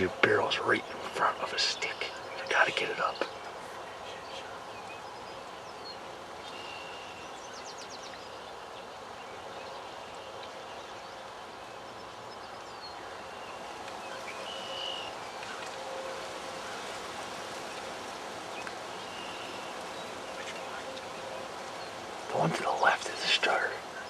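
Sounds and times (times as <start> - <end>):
faint high bird calls: 0.0 - 24.0
outdoor background noise: 0.0 - 24.0
faint ticks: 18.6 - 21.8.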